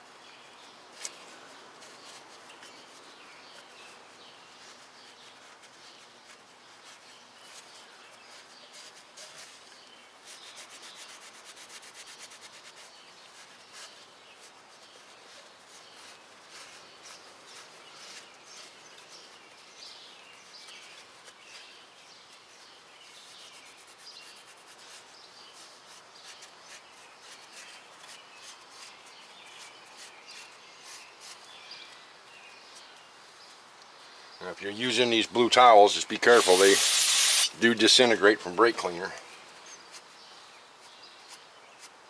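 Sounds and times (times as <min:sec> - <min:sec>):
cloth wiping metal with squeaks: 0:36.2 - 0:37.7.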